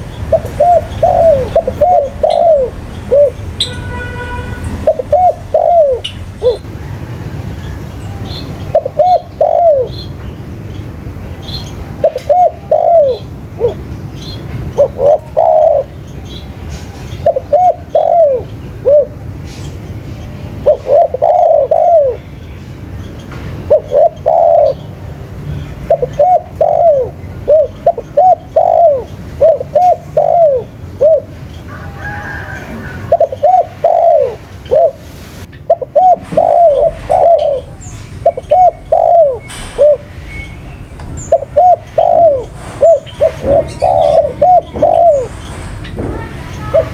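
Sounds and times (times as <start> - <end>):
dove cooing: 0.0 - 3.5, 4.8 - 10.1, 11.9 - 13.9, 14.7 - 16.0, 17.2 - 19.2, 20.6 - 22.3, 23.7 - 24.9, 25.8 - 40.2, 41.2 - 46.9.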